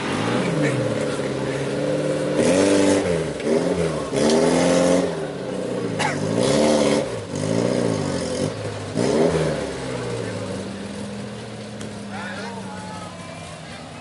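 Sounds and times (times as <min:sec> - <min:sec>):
jeep engine revving hard: 0:00.0 - 0:11.1.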